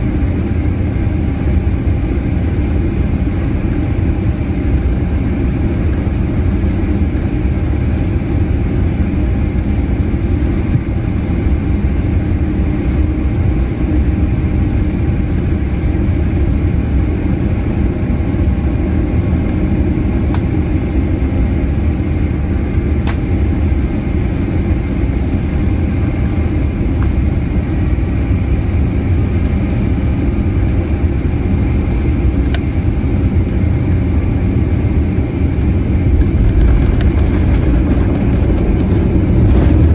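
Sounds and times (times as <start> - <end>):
airliner cabin rumble: 14.3 - 39.9.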